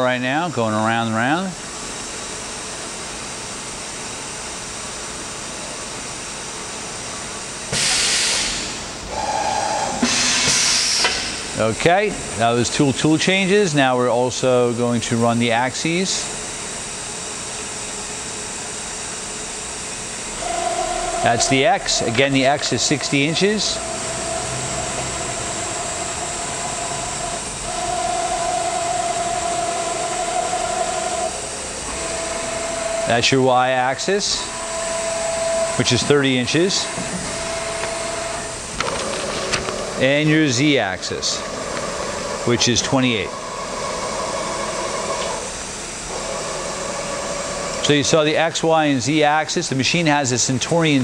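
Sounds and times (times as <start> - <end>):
machine hum: 0.0 - 51.0
mid-pitched machine whine: 0.0 - 51.0
loud air hiss: 7.7 - 12.1, 20.2 - 31.9.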